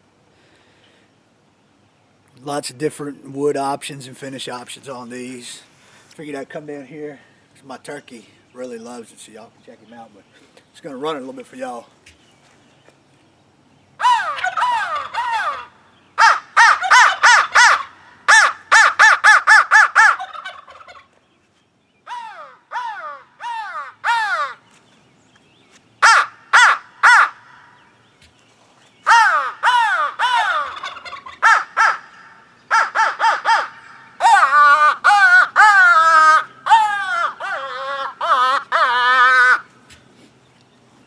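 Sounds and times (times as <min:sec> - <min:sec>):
crow call harsh caws: 0:22.1 - 0:24.6, 0:26.0 - 0:27.8, 0:29.1 - 0:30.6, 0:31.4 - 0:39.7.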